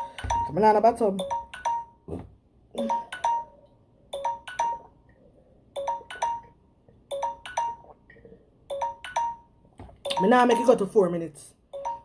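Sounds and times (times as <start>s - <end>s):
timer alarm two-tone chime: 0.0s - 2.1s, 2.8s - 4.9s, 5.8s - 7.9s, 8.7s - 11.0s, 11.7s - 12.0s.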